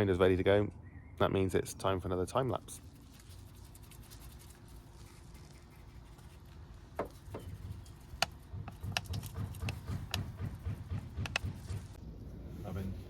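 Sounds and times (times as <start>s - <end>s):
sharp clicks and taps: 7.0s - 12.0s.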